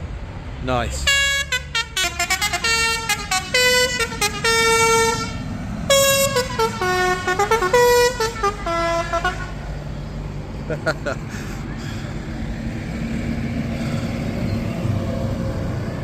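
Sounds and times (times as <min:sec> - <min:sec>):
tractor engines rumbling: 0:00.0 - 0:16.0
musical vehicle horn playing tune: 0:01.0 - 0:09.6.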